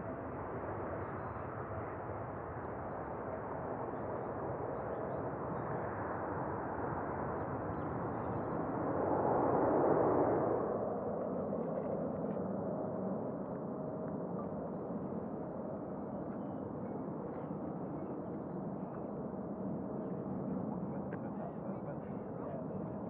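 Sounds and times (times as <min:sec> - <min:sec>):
jet engines at takeoff: 0:00.0 - 0:23.0.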